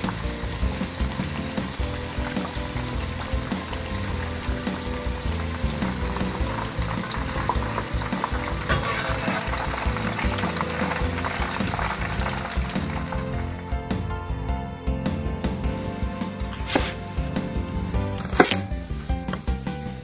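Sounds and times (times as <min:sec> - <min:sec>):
vegetables deep-frying in oil: 0:00.0 - 0:13.7.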